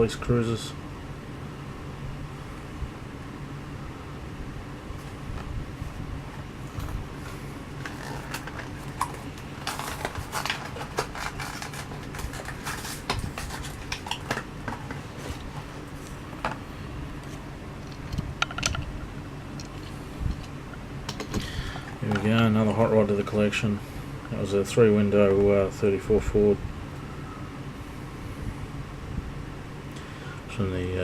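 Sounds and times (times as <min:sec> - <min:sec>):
steady low hum: 0:00.0 - 0:31.0
plastic and cardboard crackling: 0:06.3 - 0:16.6.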